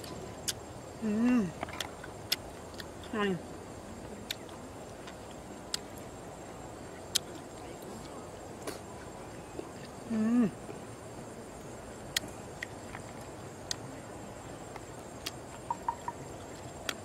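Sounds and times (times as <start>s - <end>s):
person chewing with wet mouth clicks: 1.7s - 2.9s, 4.3s - 5.9s, 15.2s - 17.0s.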